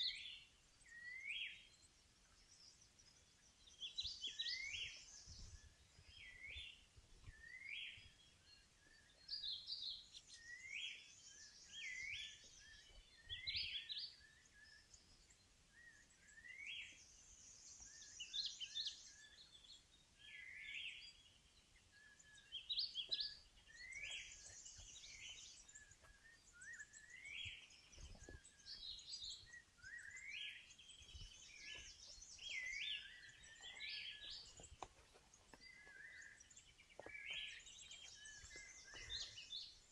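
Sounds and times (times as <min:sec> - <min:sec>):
birds calling with rising notes: 0:00.0 - 0:39.9.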